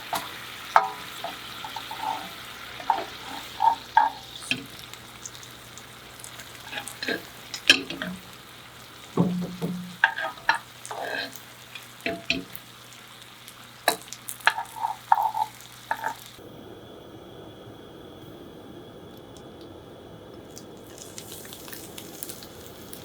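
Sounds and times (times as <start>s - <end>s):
utensil scraping frying pan: 0.0s - 16.4s
food sizzling: 0.0s - 16.8s, 18.0s - 23.0s.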